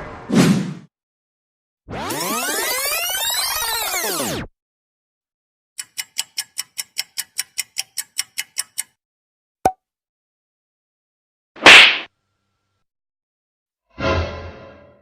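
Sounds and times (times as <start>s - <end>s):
fast mechanical ticking: 5.8s - 9.0s.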